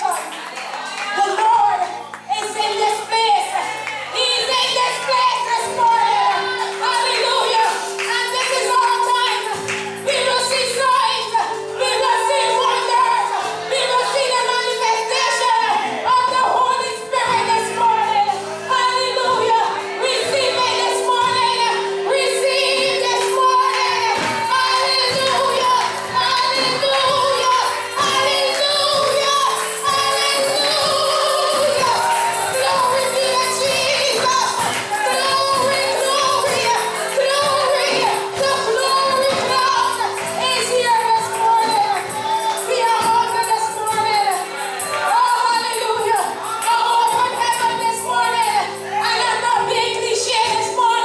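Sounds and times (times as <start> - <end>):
person singing gospel: 2.3 - 51.0
organ chords: 5.5 - 45.1.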